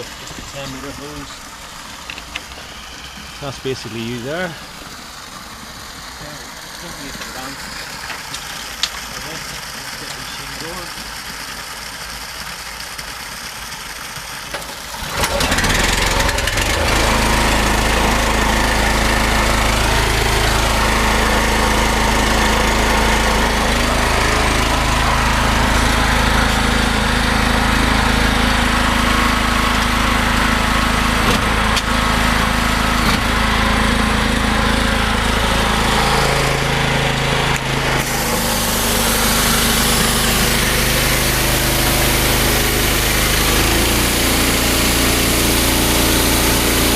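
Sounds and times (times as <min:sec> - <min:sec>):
pressure washer hiss: 0:00.0 - 0:10.9, 0:14.6 - 0:46.9
petrol engine running: 0:15.0 - 0:46.9.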